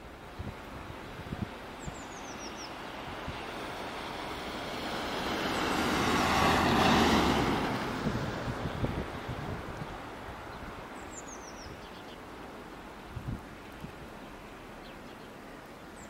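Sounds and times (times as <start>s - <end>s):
vehicle passing on road: 1.4s - 11.6s.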